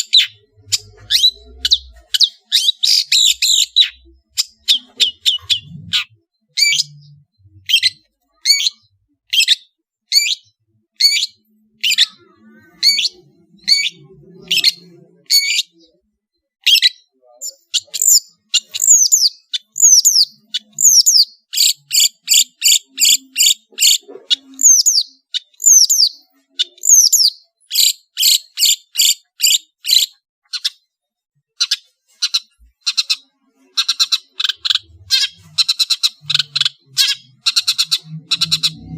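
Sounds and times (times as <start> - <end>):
shrike singing: 0.0 - 16.0.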